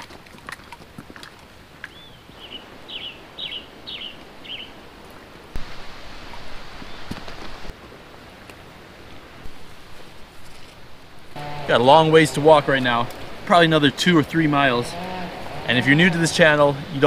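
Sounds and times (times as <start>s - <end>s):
steady rustling hiss: 1.5s - 17.0s
songbird chirping: 1.8s - 7.6s.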